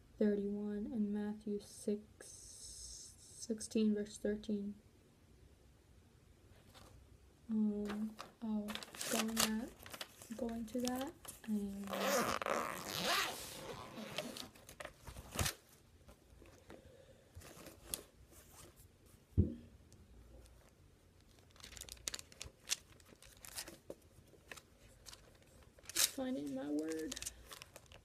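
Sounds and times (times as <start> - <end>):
paper rustling and crinkling: 6.6 - 7.0, 7.8 - 16.8, 17.4 - 18.9, 20.4 - 28.0.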